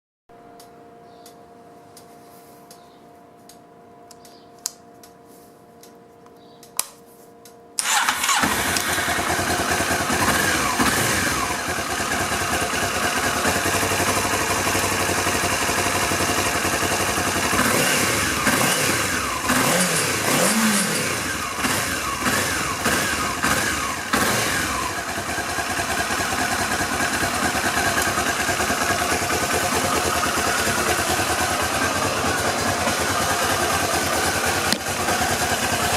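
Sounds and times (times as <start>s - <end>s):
motorcycle engine running and revving: 7.8s - 35.9s.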